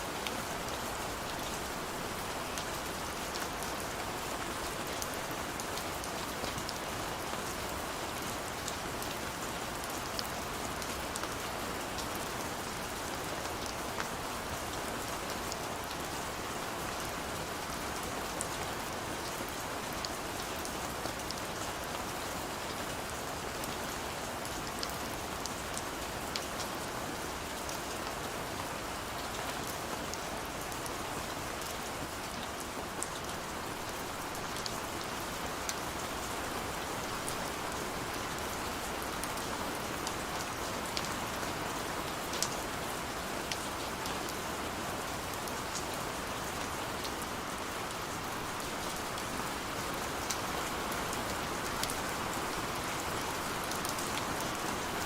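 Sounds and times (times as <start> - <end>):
rain on hard surfaces: 0.0 - 55.0.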